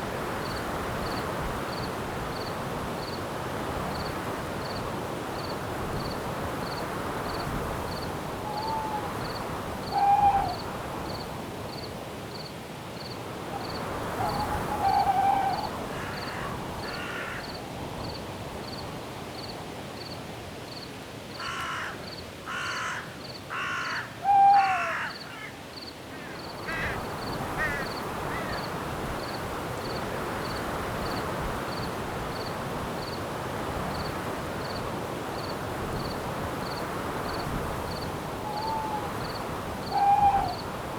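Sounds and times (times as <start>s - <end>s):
rustling breeze: 0.0s - 40.9s
cricket chirping: 0.4s - 3.2s, 3.9s - 18.8s, 24.6s - 33.2s, 33.9s - 40.8s
bird calling: 8.4s - 9.2s, 9.8s - 10.6s, 13.6s - 17.2s, 22.6s - 25.5s, 38.4s - 40.8s
harsh cawing bird calls: 14.2s - 17.5s, 21.4s - 28.6s.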